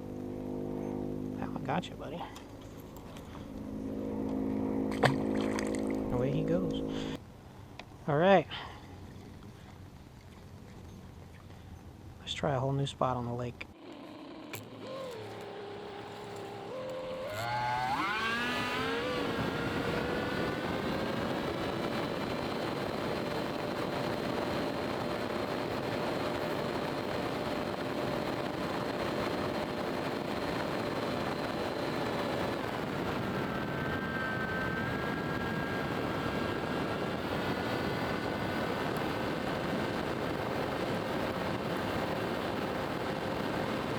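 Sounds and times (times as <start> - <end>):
outboard motor running: 2.4 - 7.2, 13.6 - 33.0.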